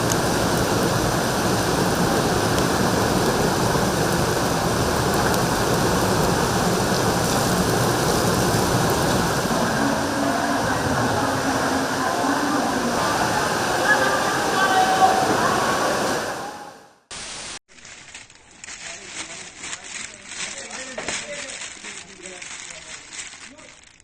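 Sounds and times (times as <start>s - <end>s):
rushing water: 0.0s - 17.6s.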